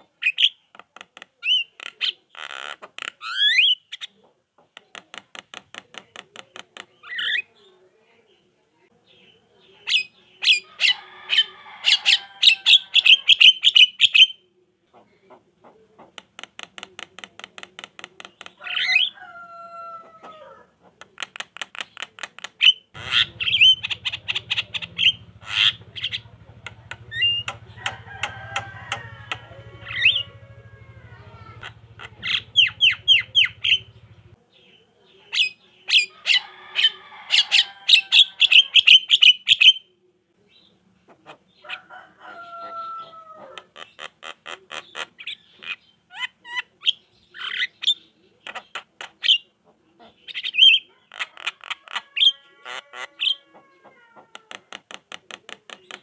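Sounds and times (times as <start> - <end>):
myna chattering: 20.4 - 34.4
faint low hum: 23.0 - 35.3.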